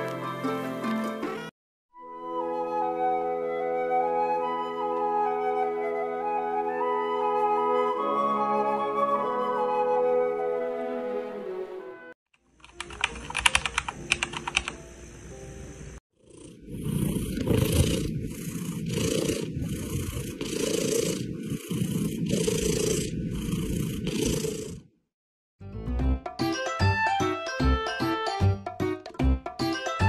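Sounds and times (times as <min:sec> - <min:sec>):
sharp clicks: 0:12.6 - 0:14.8
cat purring: 0:16.2 - 0:24.9.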